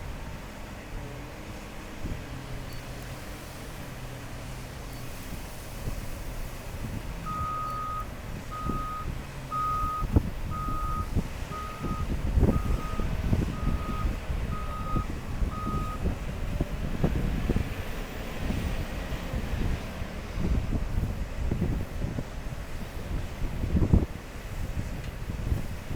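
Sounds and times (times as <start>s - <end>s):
heavy diesel engine running: 0.0s - 25.9s
backup alarm beeping: 7.3s - 16.0s.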